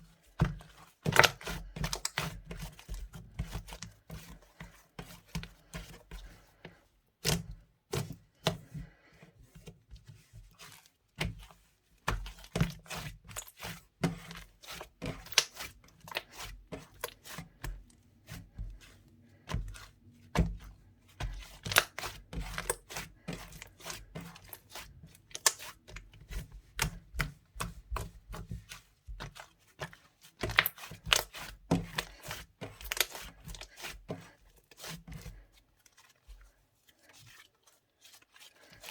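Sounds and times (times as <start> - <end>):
slime squished by hand: 21.3 - 28.1.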